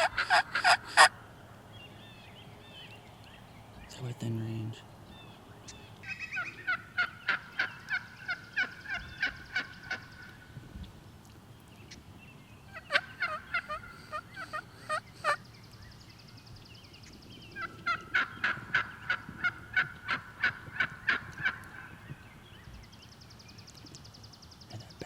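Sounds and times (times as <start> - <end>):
wild turkey yelping: 0.0 - 1.1, 12.7 - 15.4, 17.6 - 21.9.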